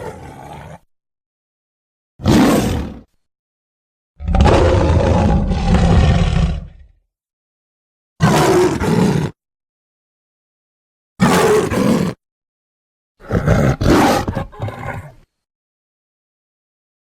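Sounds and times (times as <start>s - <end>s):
lion roaring: 0.0s - 0.8s, 2.2s - 3.1s, 4.2s - 7.0s, 8.2s - 9.4s, 11.2s - 12.2s, 13.2s - 15.2s.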